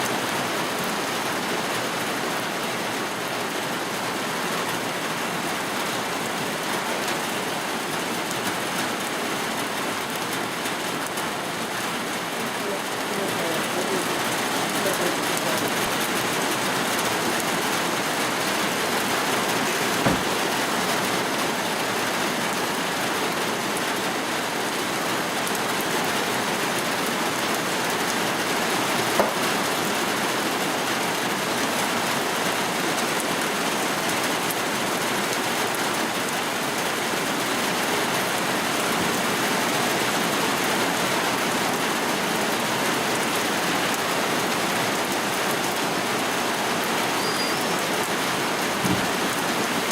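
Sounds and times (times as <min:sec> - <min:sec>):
steady rain falling: 0:00.0 - 0:49.9
sharp knocks: 0:20.0 - 0:20.6, 0:48.8 - 0:49.2.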